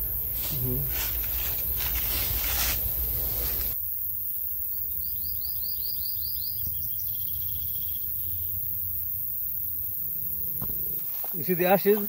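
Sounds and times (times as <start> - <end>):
rough rustling noise: 0.0 - 3.8
low outdoor background: 0.0 - 12.0
songbird singing slurred notes: 5.0 - 8.7.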